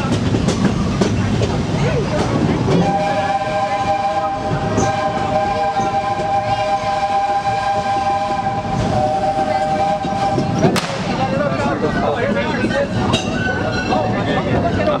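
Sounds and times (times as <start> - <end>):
rumble of moving train: 0.0 - 15.0
steam locomotive whistle: 2.7 - 10.8.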